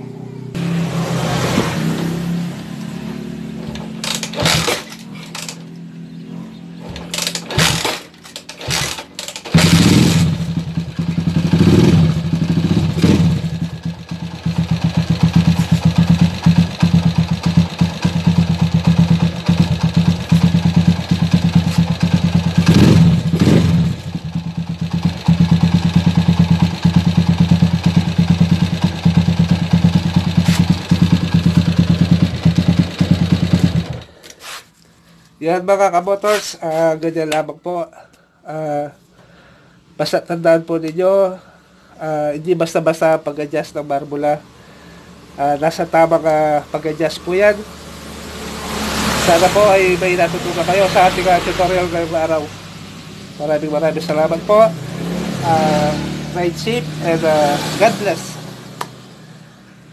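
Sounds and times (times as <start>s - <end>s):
four-stroke engine running: 0.6s - 34.2s, 47.9s - 53.1s
engine knocks: 3.6s - 5.8s, 6.8s - 34.1s.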